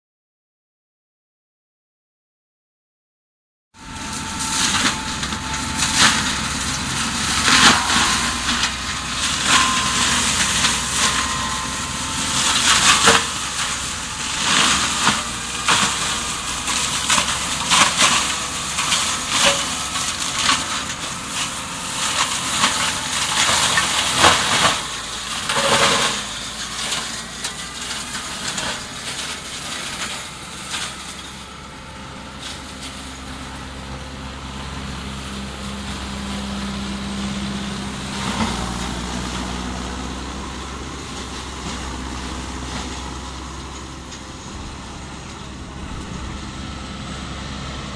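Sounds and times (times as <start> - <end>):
tractor drone: 3.8 - 47.9
shredder rotor cracking and knocking: 4.5 - 31.3.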